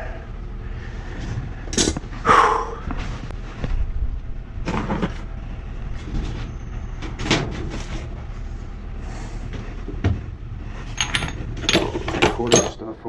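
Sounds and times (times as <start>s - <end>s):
metal tools knocking and clicking: 11.0s - 13.0s.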